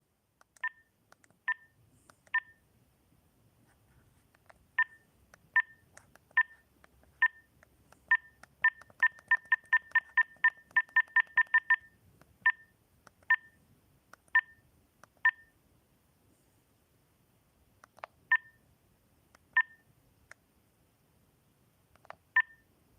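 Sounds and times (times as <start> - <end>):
phone keypad beeps: 0.6 - 0.9, 1.5 - 2.6, 4.8 - 6.6, 7.2 - 7.5, 8.1 - 13.6, 14.3 - 14.6, 15.2 - 15.5, 18.3 - 18.6, 19.5 - 19.9, 22.3 - 22.7.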